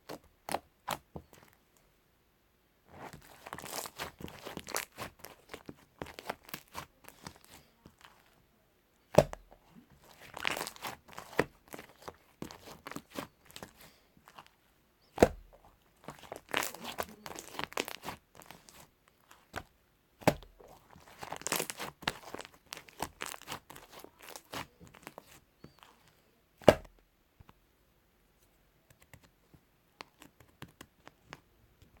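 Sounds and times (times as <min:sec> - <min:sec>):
slime crackling and squishing: 0:02.9 - 0:08.4, 0:09.1 - 0:26.0
sharp slime pops: 0:09.1 - 0:09.5, 0:15.2 - 0:15.5, 0:20.2 - 0:20.5, 0:26.6 - 0:26.9.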